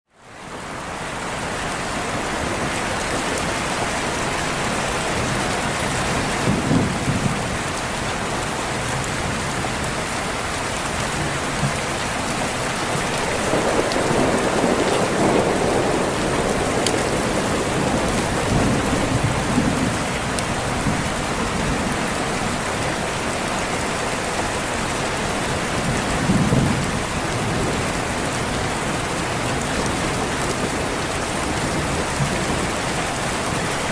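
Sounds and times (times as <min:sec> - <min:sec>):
steady rain: 0:00.1 - 0:33.9
thunder rumbling: 0:06.1 - 0:07.7, 0:12.6 - 0:22.7, 0:25.7 - 0:33.9.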